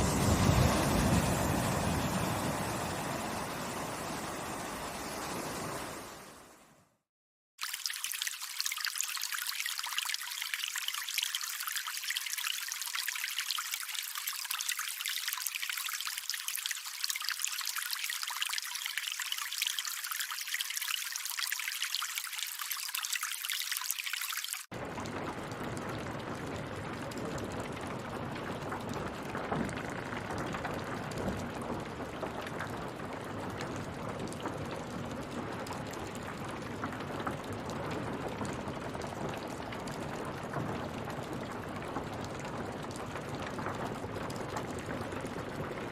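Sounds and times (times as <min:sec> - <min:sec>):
deep rush of water: 0:00.0 - 0:06.5
water trickling and splashing: 0:00.0 - 0:06.5, 0:07.6 - 0:45.9.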